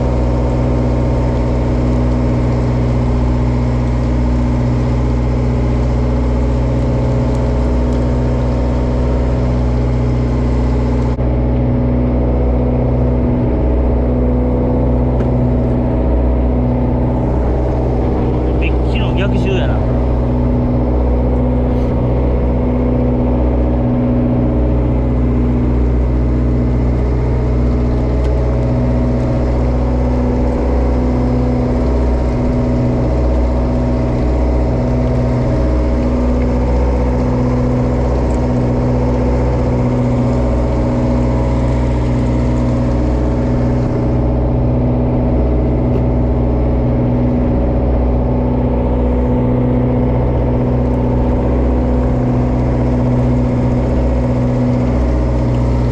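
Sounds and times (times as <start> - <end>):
diesel engine humming: 0.0 - 55.9.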